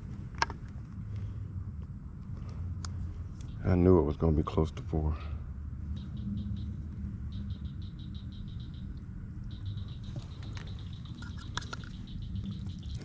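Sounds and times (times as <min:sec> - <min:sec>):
steady low rumble: 0:00.0 - 0:13.0
sharp clicks: 0:07.4 - 0:13.0.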